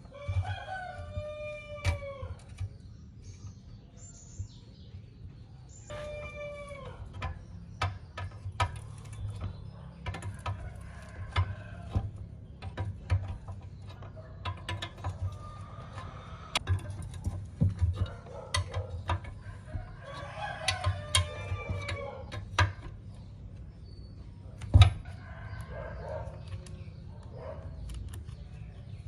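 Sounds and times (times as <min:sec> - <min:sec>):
rooster crowing: 0:00.1 - 0:02.4, 0:05.9 - 0:07.0, 0:19.6 - 0:22.3.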